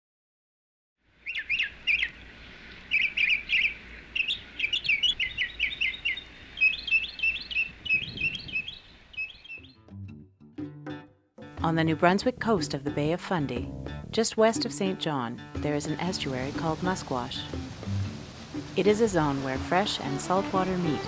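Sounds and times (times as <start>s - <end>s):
songbirds chirping: 1.1s - 9.9s, 14.6s - 21.0s.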